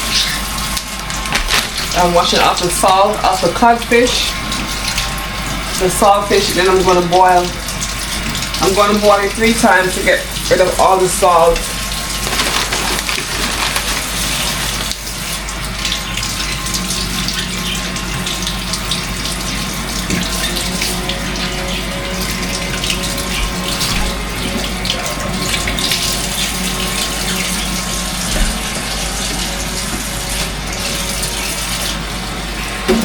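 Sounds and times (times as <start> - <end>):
tap water splashing into sink: 0.1 - 9.6, 11.5 - 30.6.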